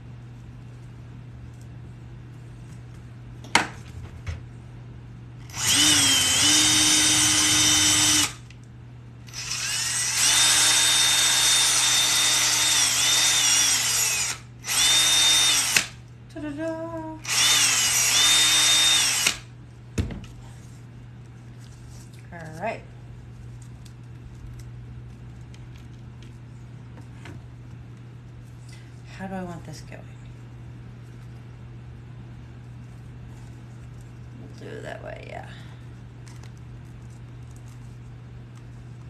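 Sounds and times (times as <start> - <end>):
power drill whining: 5.5 - 8.4, 9.3 - 16.0, 17.2 - 19.5.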